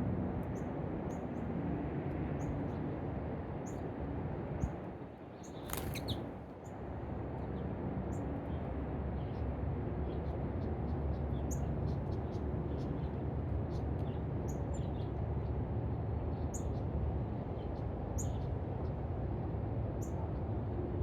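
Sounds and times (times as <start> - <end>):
small birds chirping: 5.3 - 6.4.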